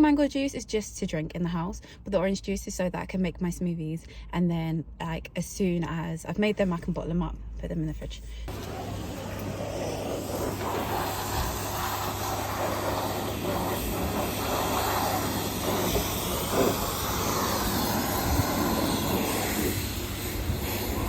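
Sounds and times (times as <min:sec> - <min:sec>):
high-pressure water spray: 0:08.5 - 0:21.0.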